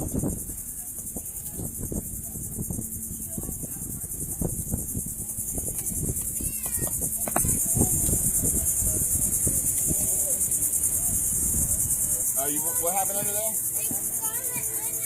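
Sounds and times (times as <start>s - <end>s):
crickets chirping: 0.0s - 15.0s
faint distant voices: 0.0s - 15.0s.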